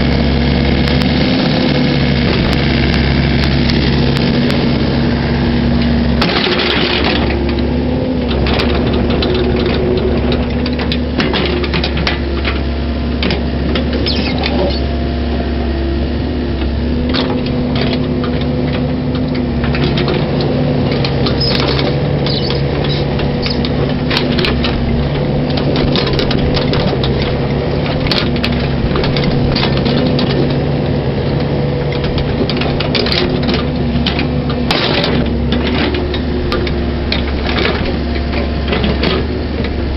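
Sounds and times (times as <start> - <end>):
diesel excavator engine running: 0.0 - 39.9
machine clanks and knocks: 6.2 - 14.7, 17.0 - 39.9.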